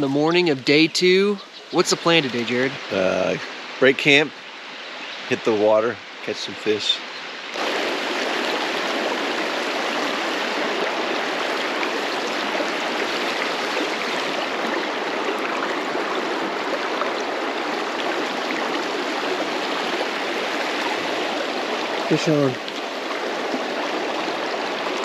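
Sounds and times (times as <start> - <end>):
river water rushing: 7.0 - 25.0.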